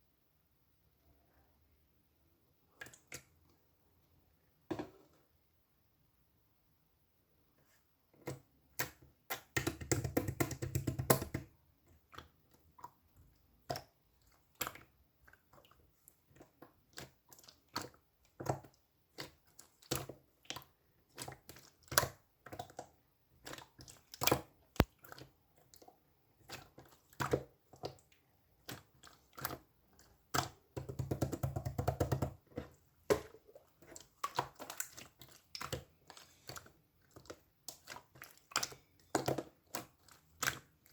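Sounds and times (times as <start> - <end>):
slime clicking and squishing: 8.2 - 40.9.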